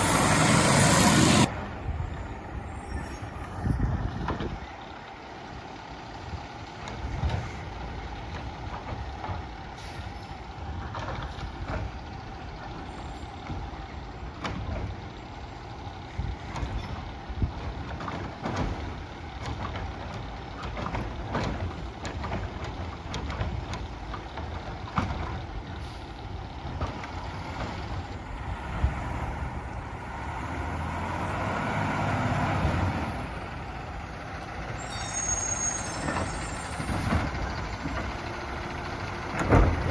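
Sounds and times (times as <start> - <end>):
diesel engine running: 0.0 - 39.9
carts clanking and knocking: 16.4 - 25.8, 33.9 - 39.9.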